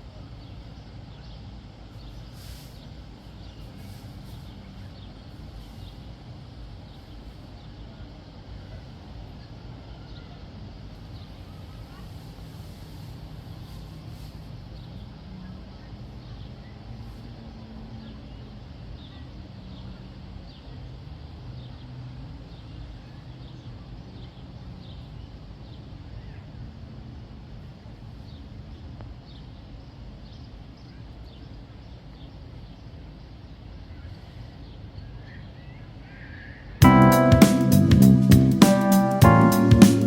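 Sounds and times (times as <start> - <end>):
short high chirps: 36.8 - 40.0.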